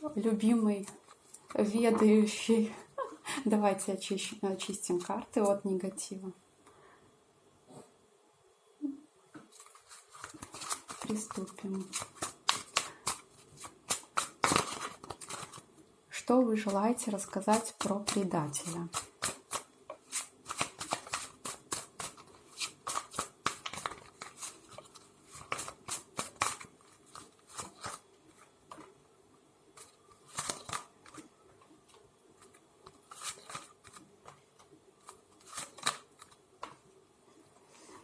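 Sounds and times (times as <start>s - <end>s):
cards being shuffled: 9.5s - 15.6s, 16.7s - 28.9s, 29.8s - 36.8s.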